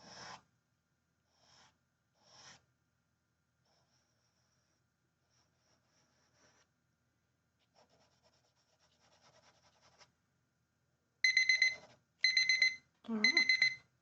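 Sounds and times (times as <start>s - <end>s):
pencil scratching on paper: 0.0s - 0.4s, 1.3s - 2.7s, 3.7s - 6.7s, 7.6s - 10.1s
timer alarm beeping: 11.2s - 13.9s.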